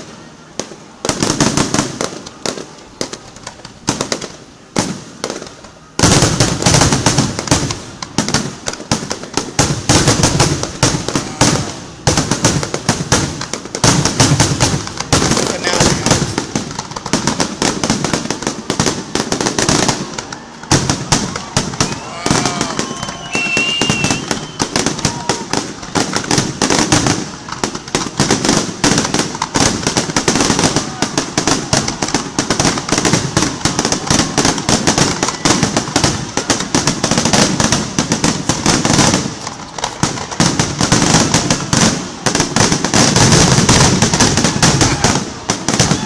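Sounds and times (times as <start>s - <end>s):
fireworks bangs and crackling: 0.0s - 46.0s
firework whistle: 15.4s - 42.0s, 43.1s - 46.0s.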